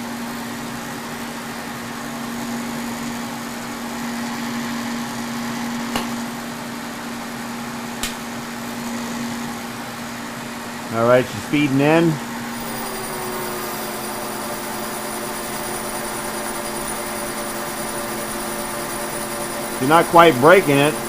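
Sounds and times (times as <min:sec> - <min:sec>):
milling machine humming: 0:11.4 - 0:21.0.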